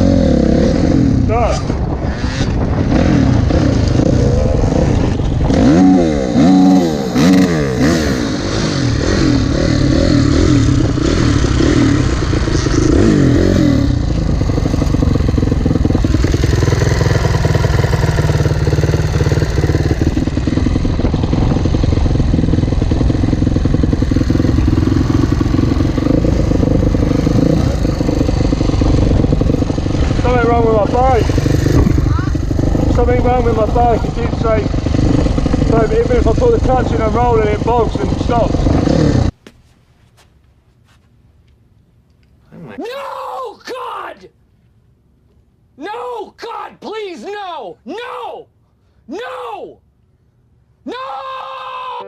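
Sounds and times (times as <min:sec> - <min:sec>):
dirt bike engine revving: 0:00.0 - 0:39.4.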